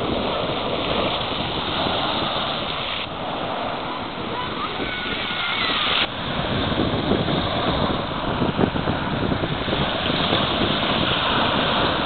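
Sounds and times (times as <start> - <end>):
waves breaking on shore: 0.0 - 12.0
wind buffeting microphone: 0.0 - 12.0.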